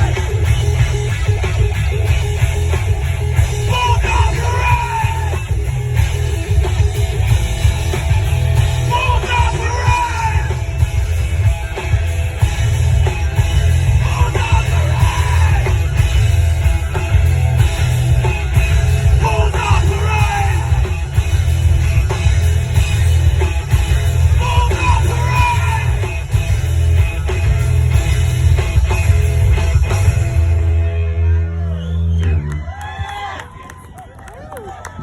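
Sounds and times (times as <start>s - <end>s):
live rock band playing: 0.0s - 32.7s
person shouting vocals: 3.7s - 5.4s.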